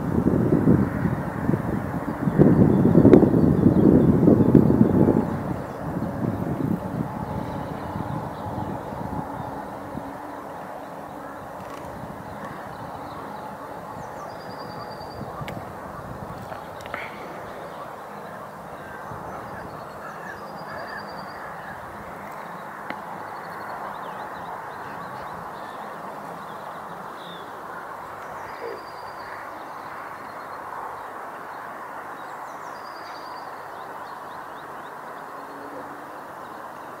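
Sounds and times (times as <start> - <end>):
outdoor background noise: 0.0 - 37.0
birds trilling: 2.3 - 30.6.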